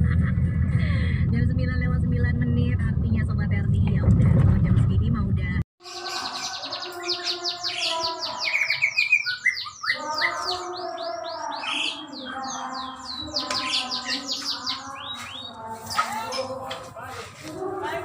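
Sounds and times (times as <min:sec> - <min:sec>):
birds warbling: 0:05.8 - 0:16.8.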